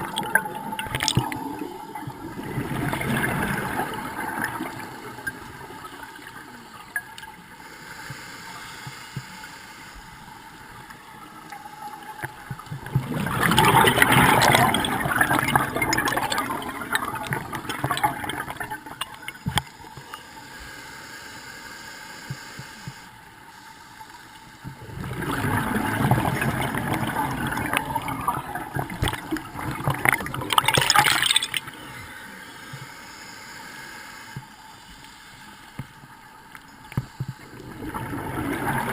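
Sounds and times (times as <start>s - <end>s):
regulator exhaust bubbles underwater: 0.0s - 6.3s, 12.4s - 19.7s, 24.8s - 31.6s, 37.5s - 38.9s
steady regulator hiss: 5.8s - 12.5s, 19.3s - 24.9s, 31.6s - 38.0s.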